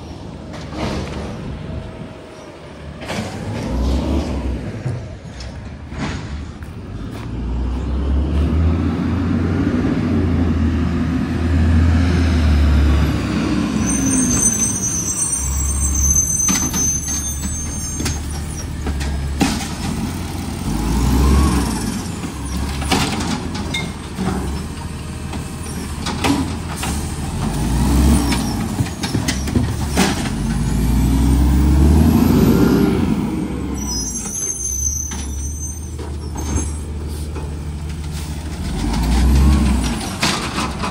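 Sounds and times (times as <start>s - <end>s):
diesel engine revving: 2.8s - 40.9s
high squeals: 13.7s - 18.8s, 33.7s - 36.9s.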